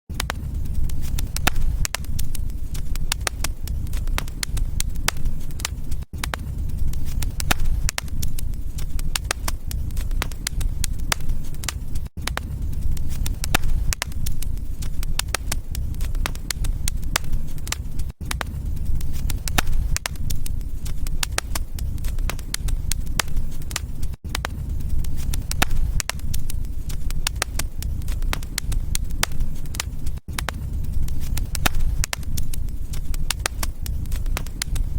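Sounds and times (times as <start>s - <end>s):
wood fire crackling and popping: 0.1s - 34.9s.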